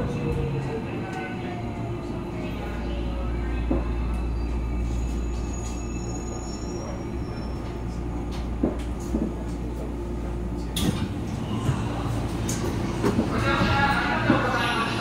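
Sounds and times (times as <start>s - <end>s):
electric train rumbling: 0.0s - 15.0s
faint high brake squeal: 4.3s - 7.8s.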